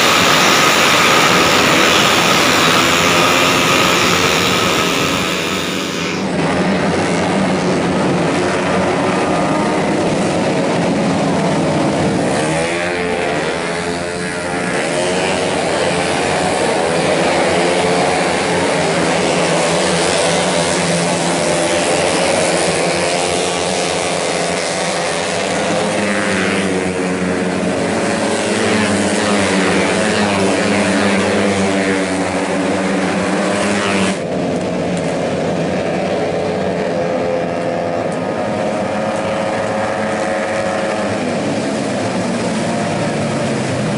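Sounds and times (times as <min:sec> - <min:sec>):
scooter engines revving past: 0:00.0 - 0:34.4, 0:35.8 - 0:43.9.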